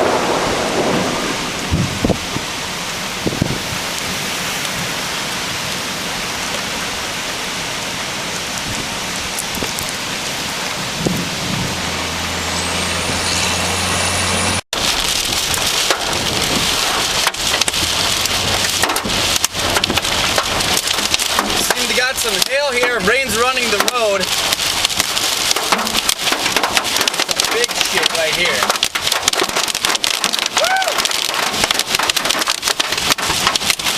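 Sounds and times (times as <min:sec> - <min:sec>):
hail hitting vehicle: 0:00.0 - 0:07.2, 0:14.7 - 0:33.9
heavy rain and wind on car: 0:00.0 - 0:33.9.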